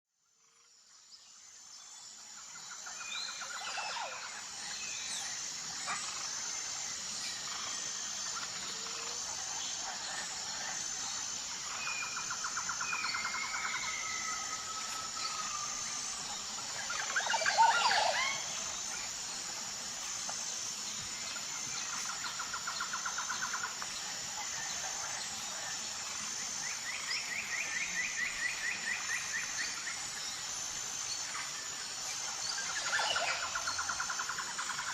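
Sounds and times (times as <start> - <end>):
high insect drone: 0.2 - 34.9
birds calling with trills: 2.8 - 19.2.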